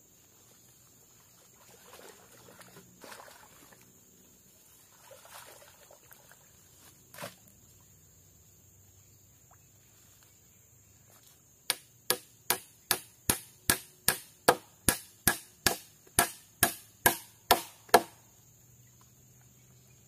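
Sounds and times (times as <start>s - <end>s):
sharp chopping strikes: 11.7s - 18.2s.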